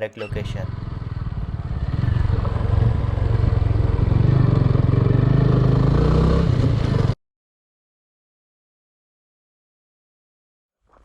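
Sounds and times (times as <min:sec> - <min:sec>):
vehicle engine rumbling: 0:00.0 - 0:07.2.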